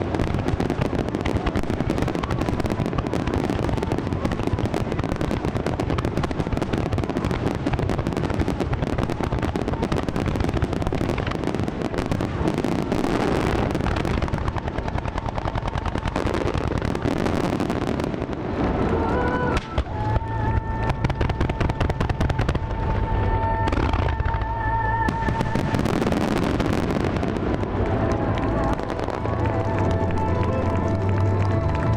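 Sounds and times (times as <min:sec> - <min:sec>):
fireworks cracks and booms: 0:00.0 - 0:31.9.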